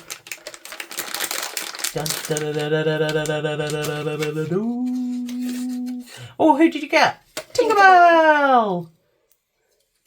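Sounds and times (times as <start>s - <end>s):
foil bag crinkling and tearing: 0.0s - 3.9s
person humming: 2.0s - 6.2s.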